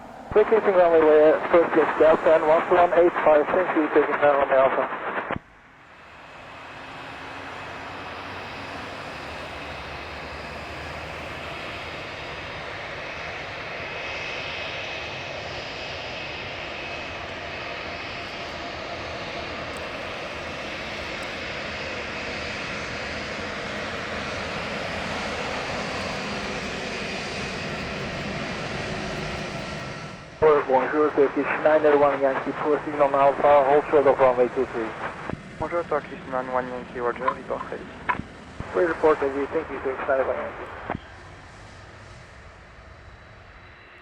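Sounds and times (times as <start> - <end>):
jet engines running at low power: 0.0 - 44.0.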